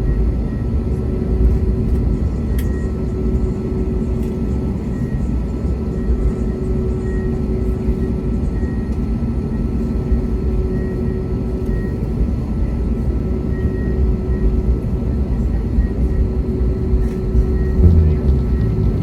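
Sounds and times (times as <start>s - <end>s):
aircraft engine rumble: 0.0s - 19.0s
steady cabin hum: 16.5s - 19.0s.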